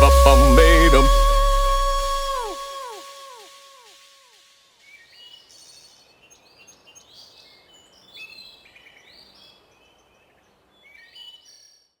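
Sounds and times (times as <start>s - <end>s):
faint woodland hiss: 4.7s - 11.3s.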